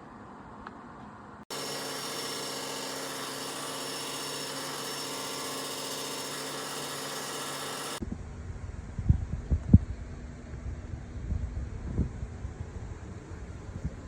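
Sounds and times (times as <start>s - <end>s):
heater fan whirring: 1.5s - 8.0s.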